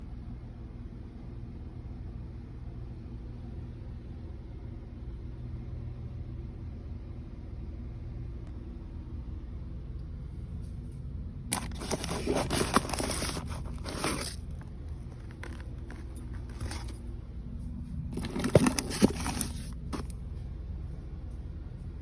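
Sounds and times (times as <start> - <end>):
steady low hum: 0.0 - 22.0
food packaging crinkling: 11.5 - 17.0, 18.1 - 20.1.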